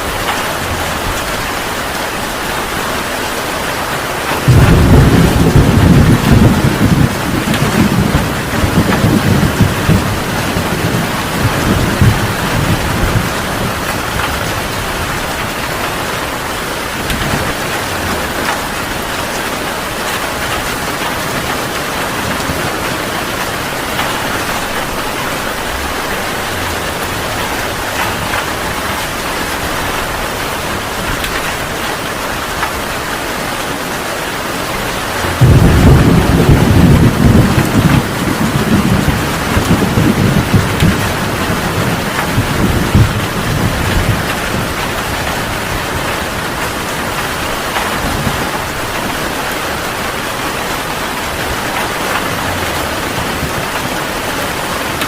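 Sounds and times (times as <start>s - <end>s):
heavy rain falling: 0.0s - 55.0s
thunder rumbling: 0.0s - 55.0s
loud thunder clap: 4.3s - 16.3s, 34.9s - 49.2s.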